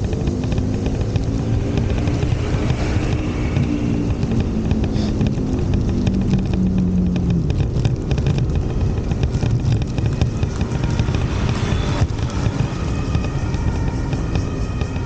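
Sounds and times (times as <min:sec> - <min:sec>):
low traffic rumble: 0:00.0 - 0:15.0
passing vehicle engine: 0:00.0 - 0:15.0.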